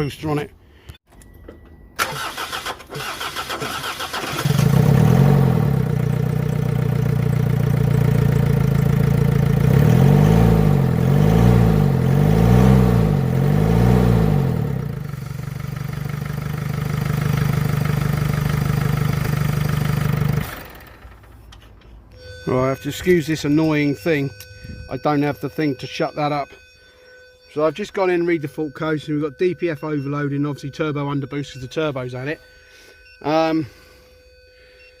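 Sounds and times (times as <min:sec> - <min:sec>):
diesel engine cranking and idling: 0:01.0 - 0:26.4
engine revving: 0:02.0 - 0:20.9.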